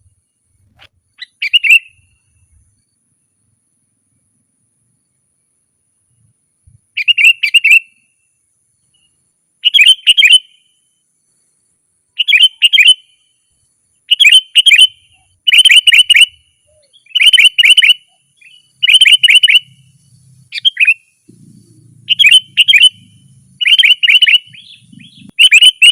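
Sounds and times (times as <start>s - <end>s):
bulbul singing: 1.2s - 3.0s, 6.9s - 8.2s, 8.8s - 10.8s, 12.1s - 13.5s, 14.1s - 25.9s.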